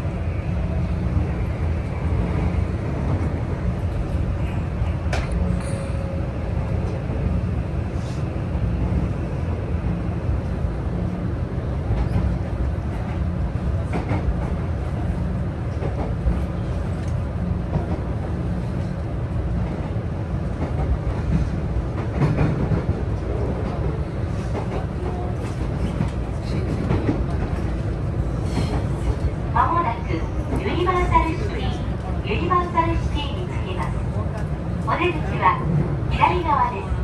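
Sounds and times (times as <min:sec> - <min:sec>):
train wheels rumbling on rail: 0:00.0 - 0:37.0
faint rail-joint clicks: 0:04.1 - 0:06.2, 0:15.7 - 0:18.0.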